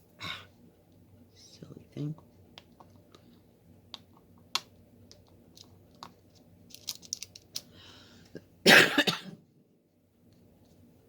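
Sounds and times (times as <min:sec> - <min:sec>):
loud cough: 0:08.6 - 0:09.4.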